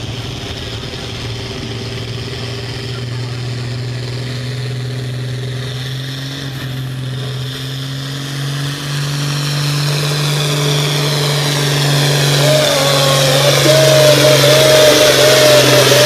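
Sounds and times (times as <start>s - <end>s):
tractor engine running under load: 0.0s - 16.0s.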